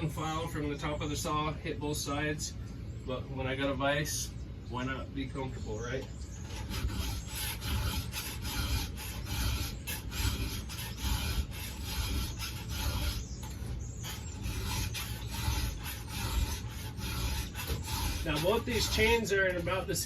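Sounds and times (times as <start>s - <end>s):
file rasping on saw chain: 6.4s - 19.9s.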